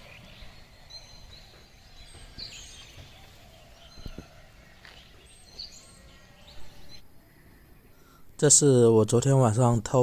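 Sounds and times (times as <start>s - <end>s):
soft low knocks: 0.0s - 5.9s
birds chirping: 0.0s - 10.0s.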